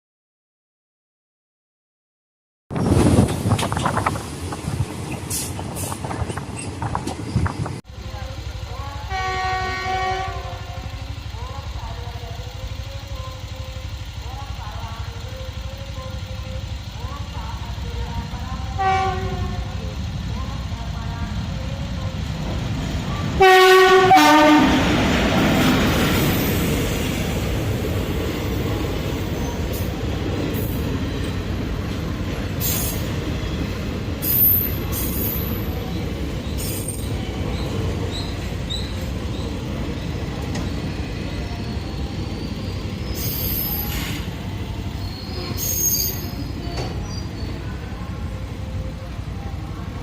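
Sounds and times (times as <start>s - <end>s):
train rumbling past: 2.7s - 50.0s
locomotive horn: 9.0s - 10.9s, 18.6s - 19.9s, 23.3s - 25.0s
wheel squeaks: 45.0s - 47.6s.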